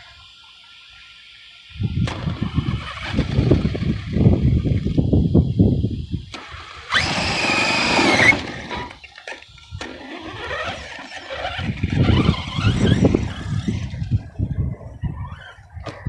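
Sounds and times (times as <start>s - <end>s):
electric motor whining: 6.9s - 9.1s, 9.8s - 15.7s.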